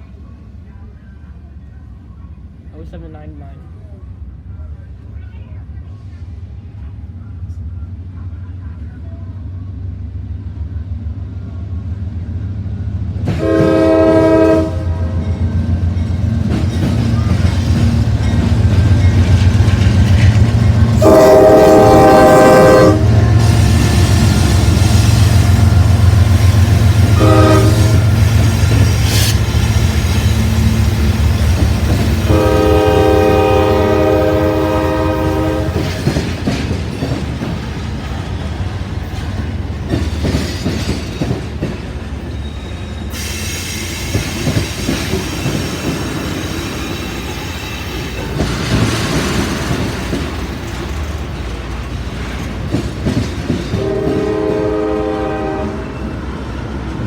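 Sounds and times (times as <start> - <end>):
diesel locomotive engines rumbling: 0.0 - 57.0
train horn blasts: 13.3 - 15.4, 21.0 - 29.4, 32.2 - 36.1, 53.7 - 56.2
wheels clattering over rail joints: 44.2 - 54.2.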